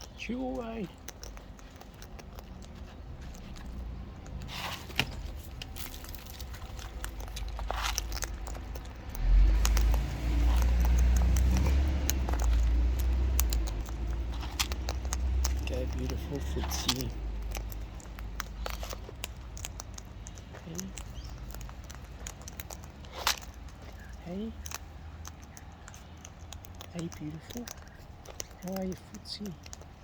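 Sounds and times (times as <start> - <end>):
bird cracking and chewing seed: 0.0 - 30.0.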